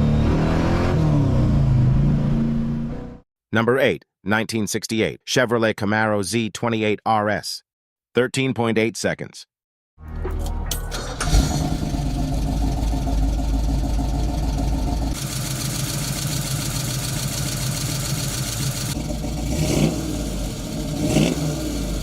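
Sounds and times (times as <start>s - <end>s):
car engine running and revving: 11.2s - 22.0s.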